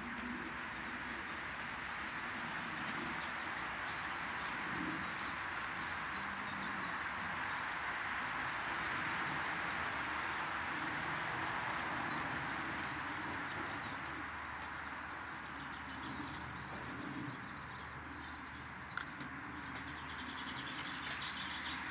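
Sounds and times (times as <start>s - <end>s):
small birds chirping: 0.1s - 21.9s.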